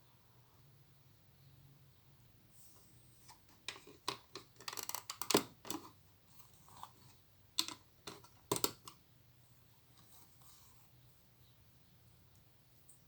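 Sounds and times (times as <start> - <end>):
plastic pieces clicking: 3.7 - 5.8, 7.6 - 9.0.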